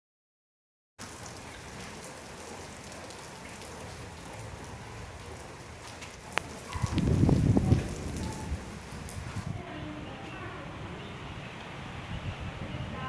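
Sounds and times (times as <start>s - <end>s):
raindrop ticks: 1.0s - 9.4s
steady rain falling: 1.0s - 13.0s.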